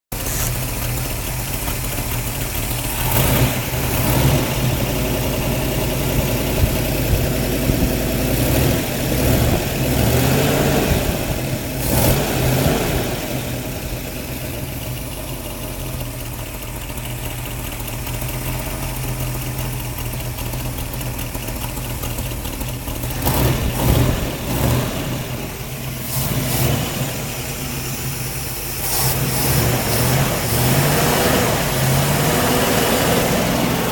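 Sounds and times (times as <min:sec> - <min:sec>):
car engine idling and revving: 0:00.1 - 0:33.9
leaking exhaust: 0:00.1 - 0:33.9.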